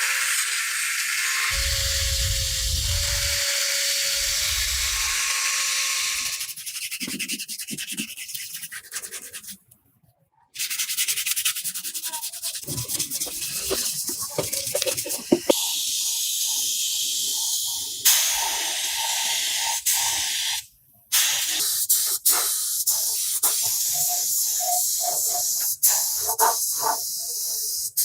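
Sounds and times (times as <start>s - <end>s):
abrasive sanding strokes: 11.5s - 15.6s.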